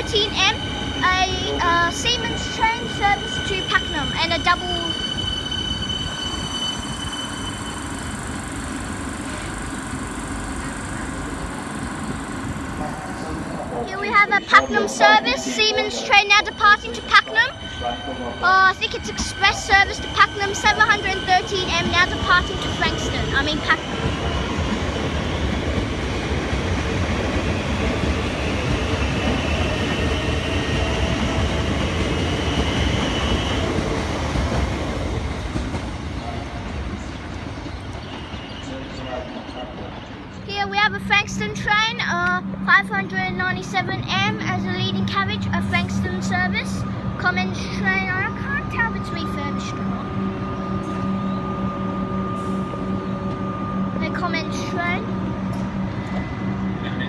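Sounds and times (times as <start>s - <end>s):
high thin tone: 0.0s - 24.0s
electric train equipment humming: 0.0s - 57.0s
high steady whine: 5.7s - 17.3s.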